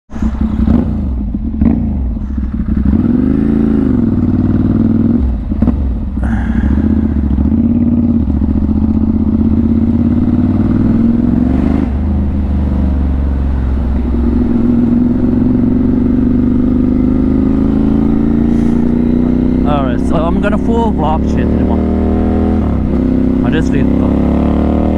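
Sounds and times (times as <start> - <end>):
motorcycle engine revving: 0.1 - 24.9.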